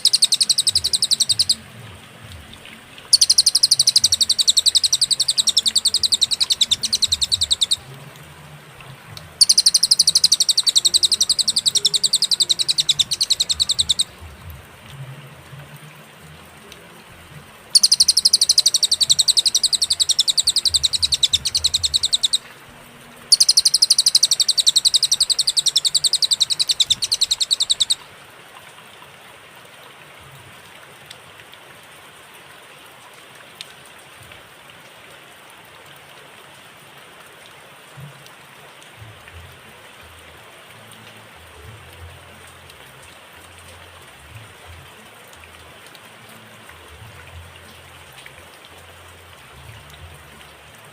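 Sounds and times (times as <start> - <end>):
songbird trilling: 0.0 - 1.6, 3.1 - 7.9, 9.4 - 14.2, 17.7 - 22.5, 23.3 - 28.0
faint hiss: 0.0 - 32.6.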